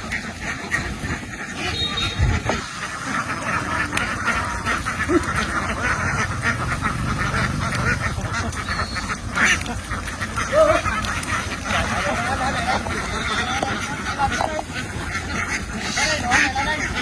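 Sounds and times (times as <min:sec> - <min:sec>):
flock of ducks quacking: 0:00.0 - 0:17.0.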